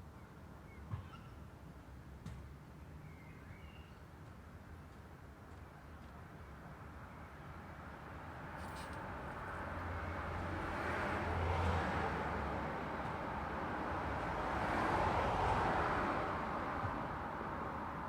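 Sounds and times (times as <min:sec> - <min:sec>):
background traffic noise: 0:00.0 - 0:18.0
vehicles driving past: 0:08.0 - 0:18.0.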